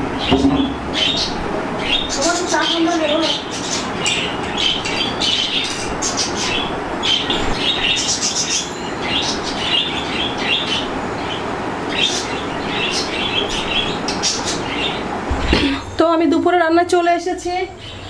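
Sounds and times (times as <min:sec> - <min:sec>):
small birds chirping: 0:03.6 - 0:06.6.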